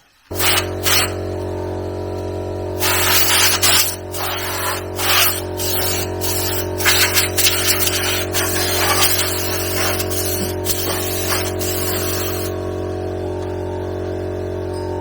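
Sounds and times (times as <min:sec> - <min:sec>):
harsh hissing or grinding bursts: 0:00.3 - 0:01.2, 0:02.8 - 0:12.5
machine humming: 0:00.3 - 0:15.0.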